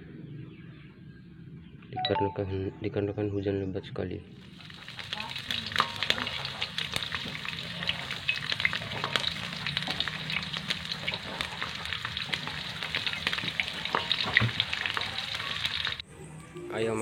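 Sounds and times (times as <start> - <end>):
heavy rain falling: 4.6 - 16.0.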